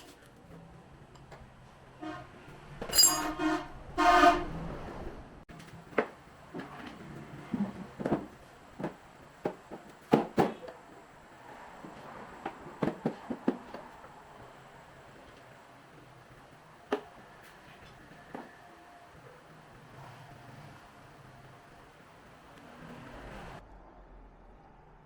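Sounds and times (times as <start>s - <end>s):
horn-like honks: 2.0s - 2.5s, 3.2s - 4.7s.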